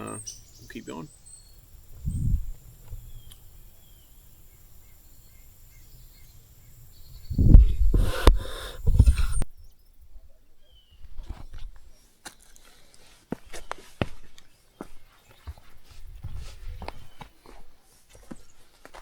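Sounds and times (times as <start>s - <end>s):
faint bird chirps: 0.0s - 12.6s
sharp click: 8.0s - 9.4s.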